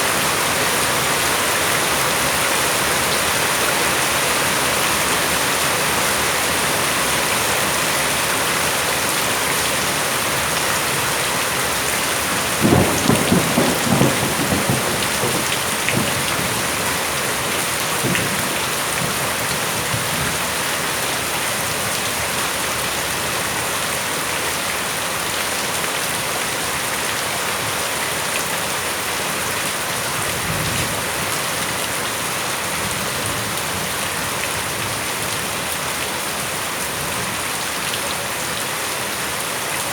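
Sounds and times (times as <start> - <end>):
steady rain falling: 0.0 - 39.9
thunder rumbling: 12.4 - 20.5.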